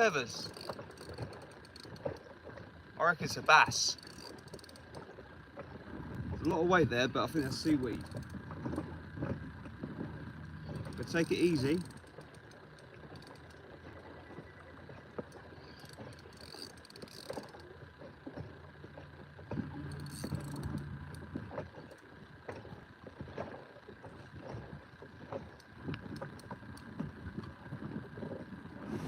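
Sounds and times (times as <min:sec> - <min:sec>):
water slapping a boat: 0:00.0 - 0:29.0.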